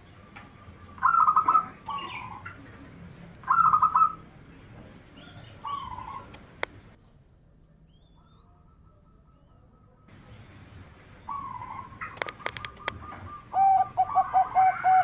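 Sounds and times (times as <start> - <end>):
dove cooing: 0.0 - 7.0, 11.2 - 15.0.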